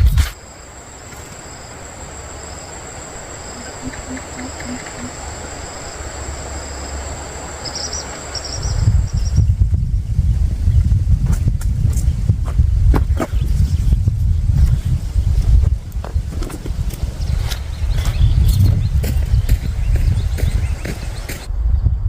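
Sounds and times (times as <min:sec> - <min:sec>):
background hiss: 0:00.0 - 0:10.8
insect chirps: 0:00.0 - 0:12.6, 0:13.2 - 0:21.5
insects droning: 0:00.0 - 0:21.5.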